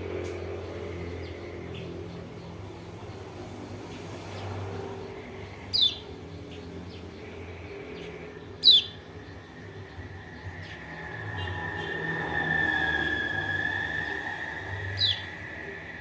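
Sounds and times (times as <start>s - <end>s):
bird giving high falling calls: 10.6s - 15.9s.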